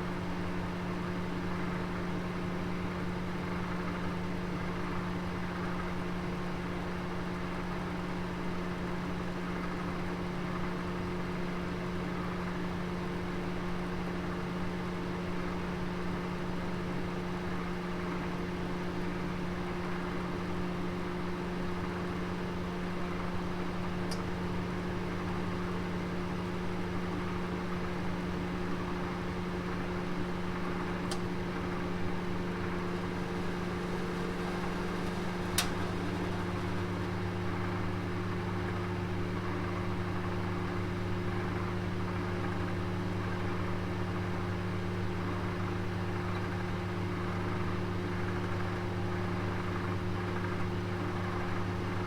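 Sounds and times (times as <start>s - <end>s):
oven humming: 19.6s - 52.0s.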